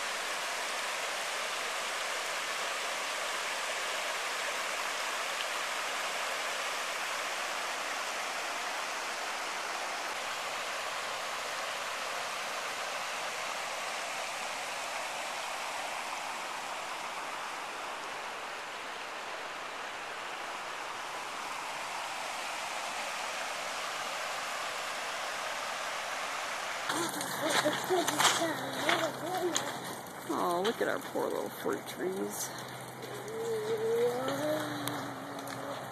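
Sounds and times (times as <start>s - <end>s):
creek water rushing: 0.0s - 35.9s.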